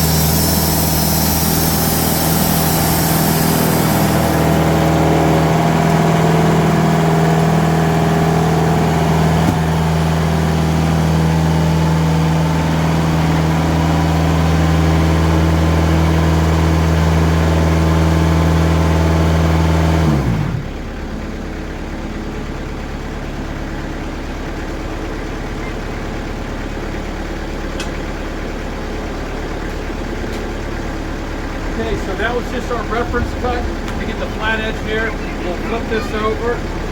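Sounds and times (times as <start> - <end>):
saw blade cutting log: 0.0 - 5.1, 8.8 - 10.6
diesel engine running: 0.0 - 36.9.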